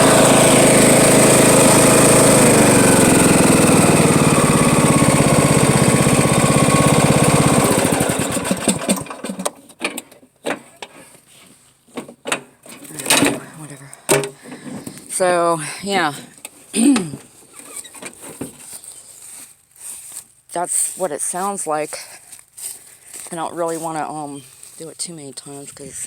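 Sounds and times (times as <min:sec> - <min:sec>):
riding mower grinding: 0:00.0 - 0:09.7.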